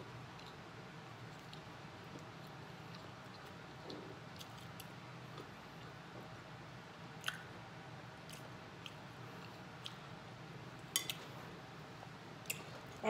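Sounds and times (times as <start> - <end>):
faint chewing: 0.3 - 6.3, 8.2 - 10.1.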